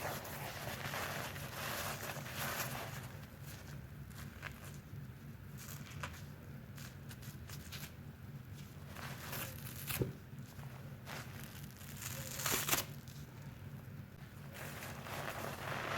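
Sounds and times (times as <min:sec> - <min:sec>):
steady low hum: 0:00.0 - 0:15.9
soapy sponge squishing: 0:14.5 - 0:15.9.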